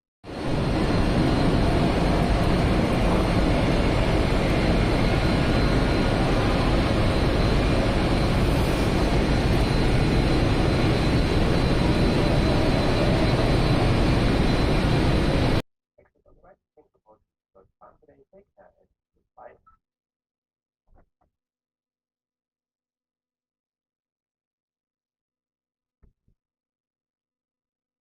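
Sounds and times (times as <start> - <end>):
faint high whine: 0.3 - 15.6
train running at speed: 0.3 - 15.6.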